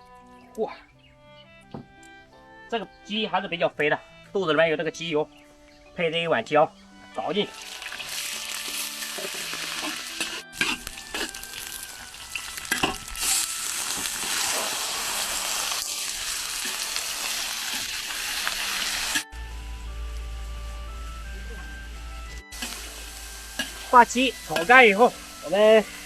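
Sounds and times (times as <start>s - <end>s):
chicken sizzling in hot oil: 7.5s - 19.3s, 22.5s - 26.0s
spatula scraping a wok: 7.6s - 19.2s.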